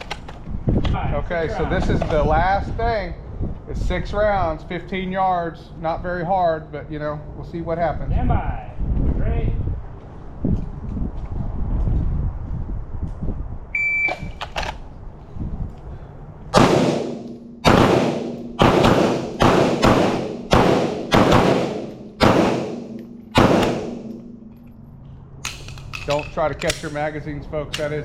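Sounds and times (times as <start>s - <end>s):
pistol shots: 16.5s - 24.4s.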